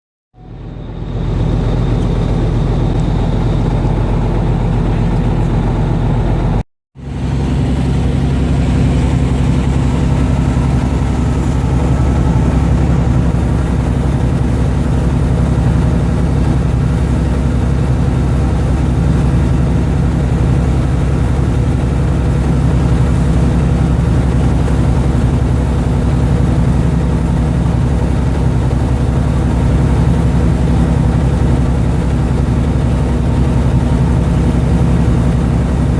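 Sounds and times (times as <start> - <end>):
boat engine humming: 0.4 - 35.9.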